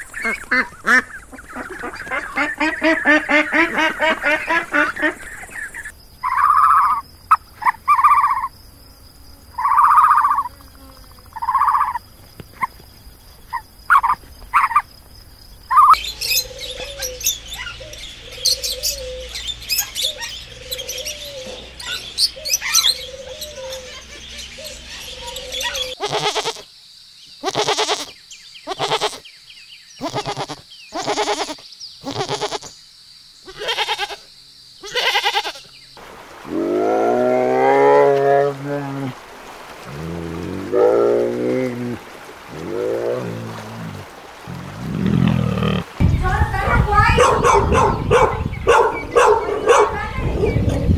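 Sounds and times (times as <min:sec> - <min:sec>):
ducks quacking: 0:00.0 - 0:05.6
goat bleating: 0:26.0 - 0:26.6, 0:27.4 - 0:28.1, 0:28.7 - 0:29.2, 0:30.0 - 0:32.7, 0:33.5 - 0:35.6.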